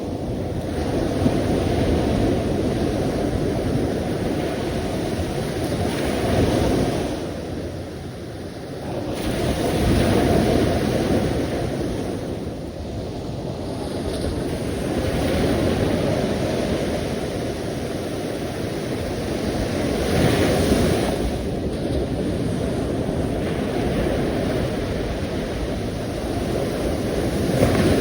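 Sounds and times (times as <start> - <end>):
ocean waves washing in: 8.5 - 28.0.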